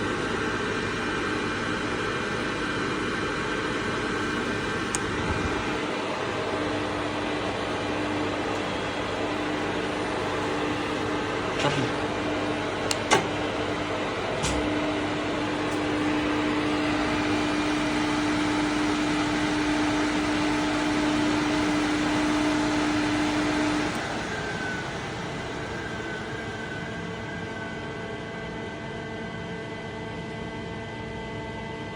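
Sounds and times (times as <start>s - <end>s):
steady electrical hum: 0.0s - 28.2s
fan-like whir: 0.0s - 31.9s
sharp switch clicks: 12.8s - 13.4s.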